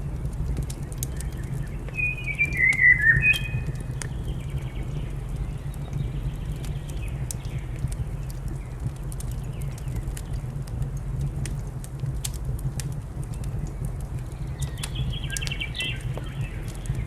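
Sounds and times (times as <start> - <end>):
fire crackling: 0.0 - 17.0
bird singing warbled phrase: 2.0 - 3.7
faint bird calls: 2.0 - 3.8.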